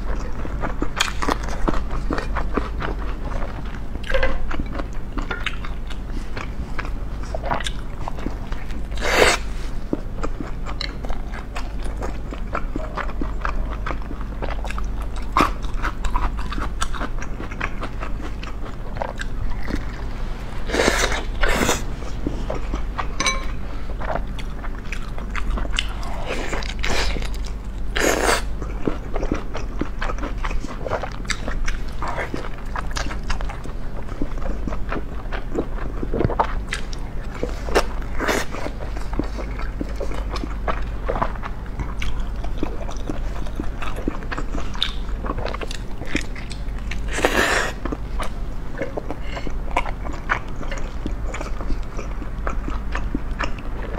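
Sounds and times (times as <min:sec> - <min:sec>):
chewing and biting bun: 0:00.0 - 0:23.2, 0:23.9 - 0:53.9
low hum: 0:01.2 - 0:29.8.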